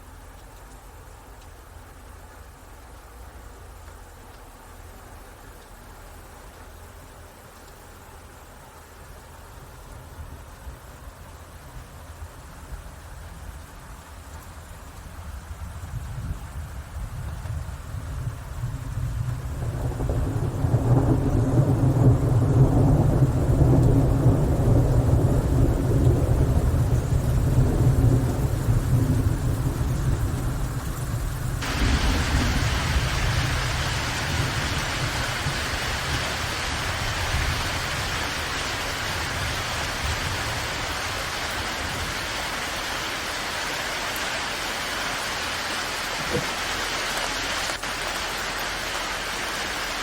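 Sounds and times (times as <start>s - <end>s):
heavy rain hissing: 1.2s - 50.0s
rolling thunder: 16.2s - 42.8s.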